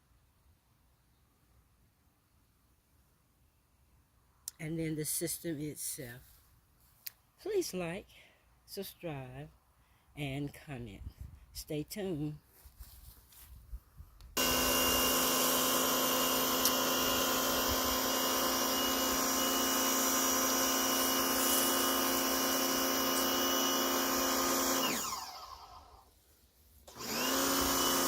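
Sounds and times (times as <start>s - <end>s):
pressure washer motor whining: 14.4s - 26.1s, 26.9s - 28.0s.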